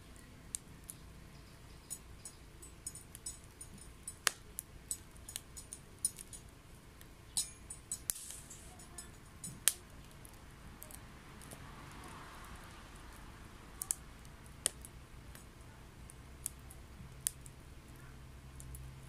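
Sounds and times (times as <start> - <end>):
wood fire crackling and popping: 0.0 - 19.0
short hiss: 8.1 - 8.8.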